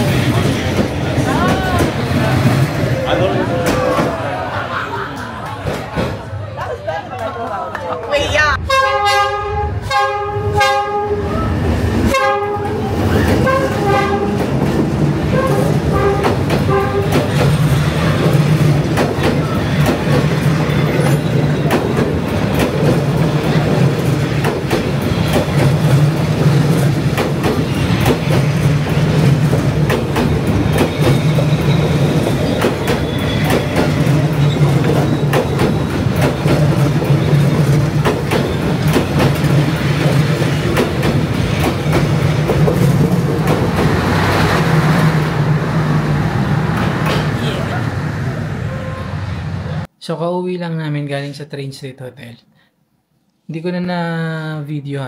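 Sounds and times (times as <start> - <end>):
train carriages rumbling: 0.0 - 49.9
locomotive horn blasts: 8.6 - 11.3, 12.1 - 12.8, 13.4 - 14.4, 15.3 - 17.2, 48.6 - 49.3
wheels clickety-clack: 13.2 - 44.8.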